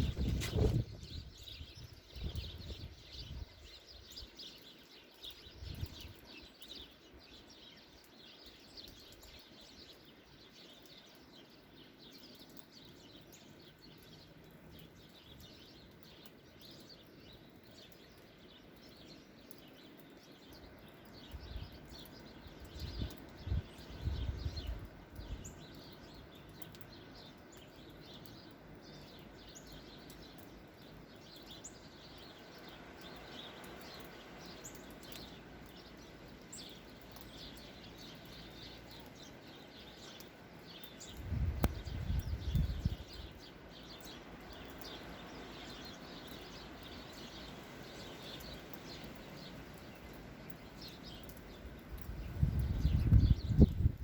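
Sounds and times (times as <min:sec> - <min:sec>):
small birds chirping: 0:00.0 - 0:54.0
outdoor hiss: 0:42.8 - 0:52.0.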